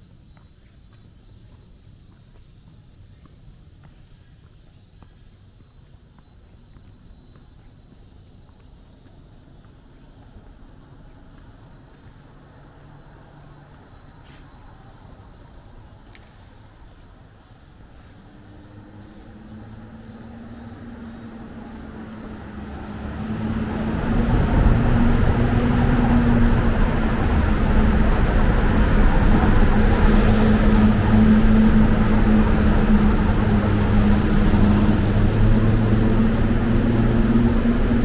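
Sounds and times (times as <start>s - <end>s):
vehicle engine and road noise: 8.1s - 38.0s.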